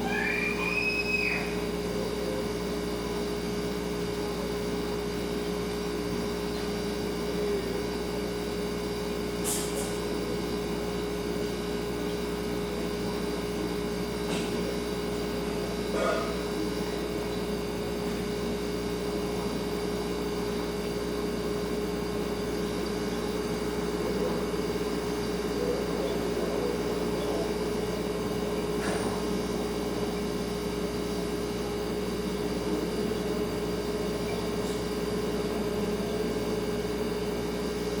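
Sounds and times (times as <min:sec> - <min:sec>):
refrigerator hum: 0:00.0 - 0:38.0.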